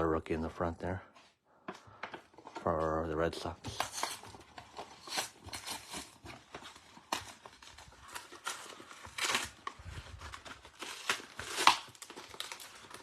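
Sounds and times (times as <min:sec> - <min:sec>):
plastic packaging crinkling and tearing: 0:02.6 - 0:13.0.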